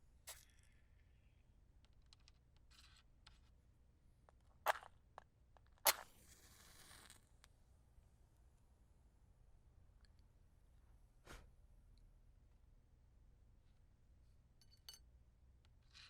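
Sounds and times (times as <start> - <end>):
match struck against matchbox: 5.8 - 7.3
match head fizzing: 5.9 - 7.3.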